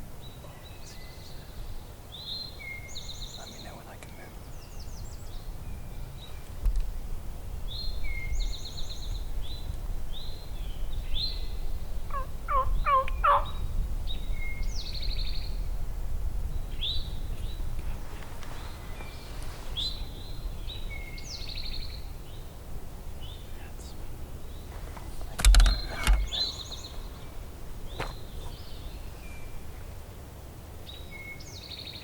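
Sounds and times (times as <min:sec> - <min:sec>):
songbirds chirping and trilling: 0:00.0 - 0:32.0
low rumble: 0:04.4 - 0:30.1
turkey gobbling: 0:12.1 - 0:13.6.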